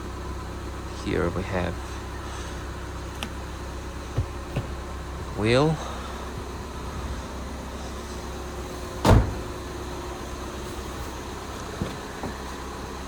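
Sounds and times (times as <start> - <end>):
steady low hum: 0.0 - 13.0
heavy thump: 4.1 - 4.9, 9.0 - 9.7.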